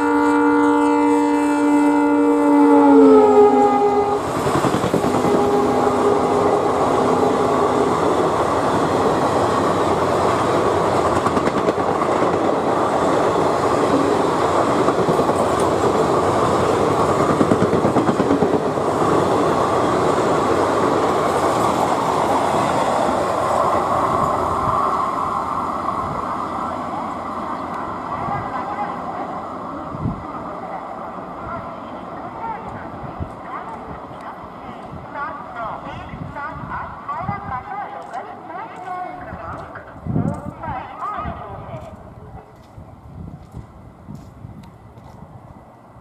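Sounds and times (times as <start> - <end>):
locomotive horn: 0.0 - 4.3, 5.1 - 8.1.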